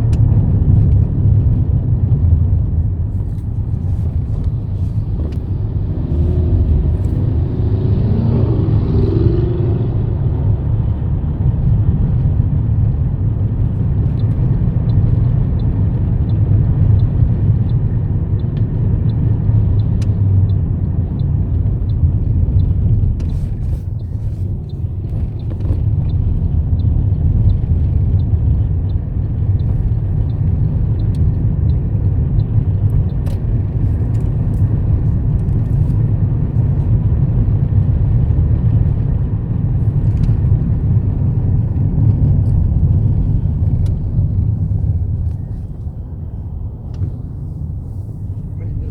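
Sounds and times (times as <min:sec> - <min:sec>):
car interior rumble: 0:00.0 - 0:48.9.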